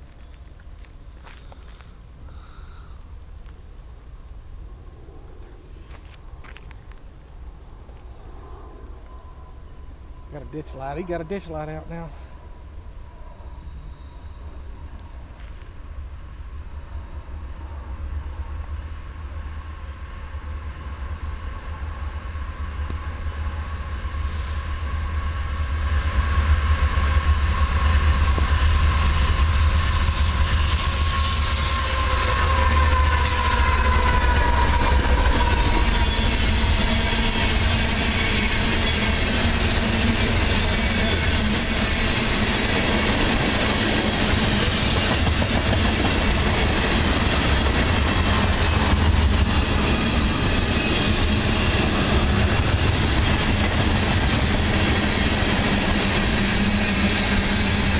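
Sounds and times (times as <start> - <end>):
locomotive engines rumbling: 26.0 - 57.9
train wheels clickety-clack: 26.7 - 57.9.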